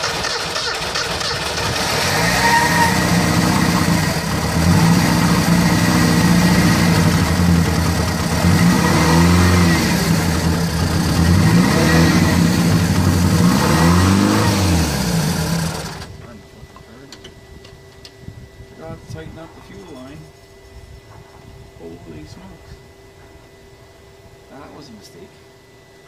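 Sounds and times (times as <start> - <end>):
car engine running and revving: 1.0 - 16.1.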